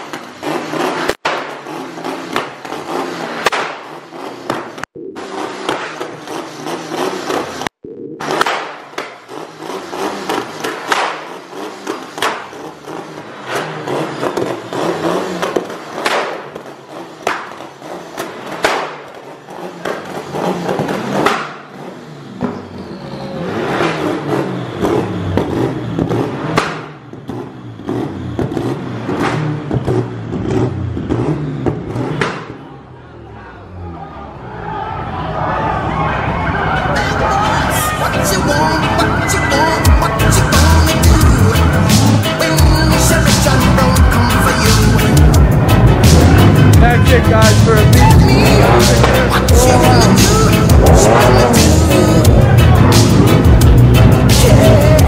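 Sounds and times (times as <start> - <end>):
car engines revving: 0.0 - 55.0.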